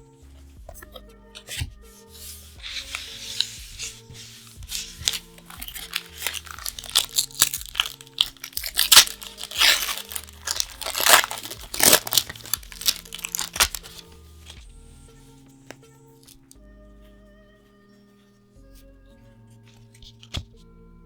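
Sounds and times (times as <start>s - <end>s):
foil wrapper tearing and crinkling: 2.6s - 14.6s.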